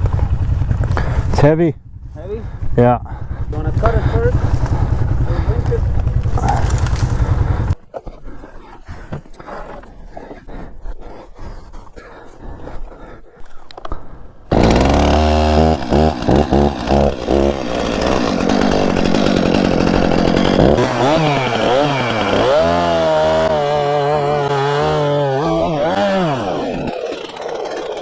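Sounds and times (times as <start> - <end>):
chainsaw cutting through tree: 0.0 - 1.3, 3.1 - 7.8, 14.5 - 28.0.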